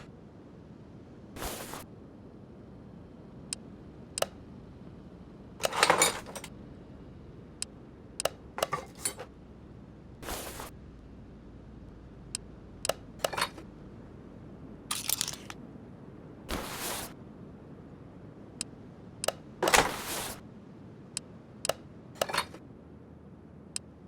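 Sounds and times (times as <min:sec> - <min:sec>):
metal tools clinking and clattering: 0:05.6 - 0:06.5, 0:08.6 - 0:09.3, 0:14.9 - 0:15.6.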